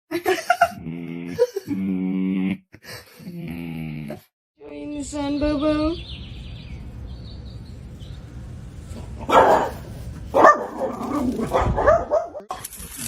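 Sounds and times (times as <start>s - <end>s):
dog barking and yelping: 9.0s - 12.5s.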